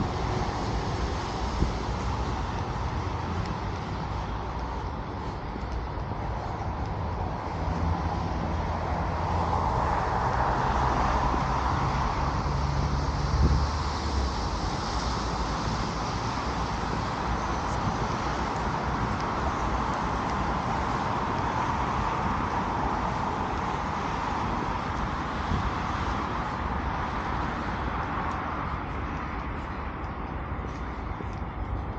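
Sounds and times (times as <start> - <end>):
cars passing: 0.0 - 31.9.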